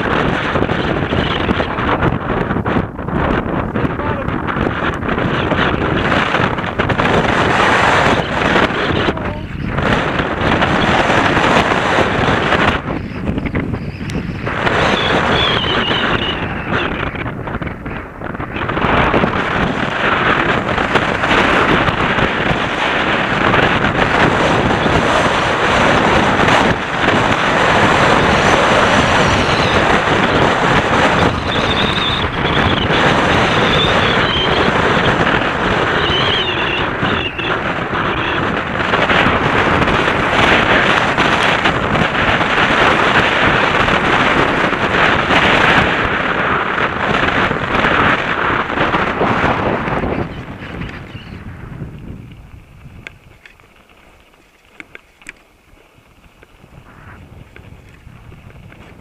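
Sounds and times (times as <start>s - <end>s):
wind buffeting microphone: 0.0s - 59.0s
mountain bike rattling on rocks: 52.0s - 56.6s.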